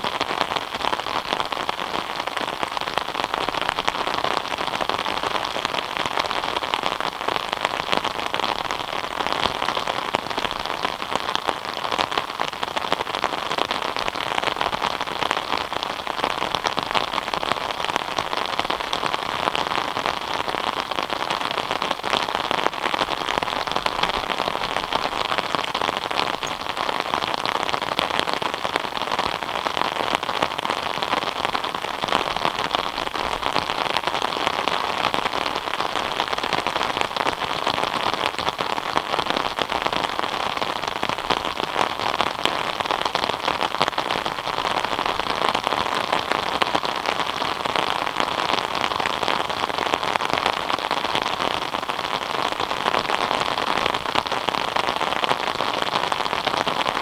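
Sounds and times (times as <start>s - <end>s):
steady rain on a surface: 0.0s - 57.0s.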